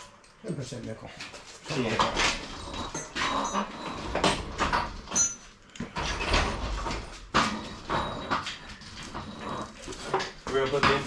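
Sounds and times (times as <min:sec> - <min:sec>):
metal tools clanking and scraping: 0:00.0 - 0:11.0.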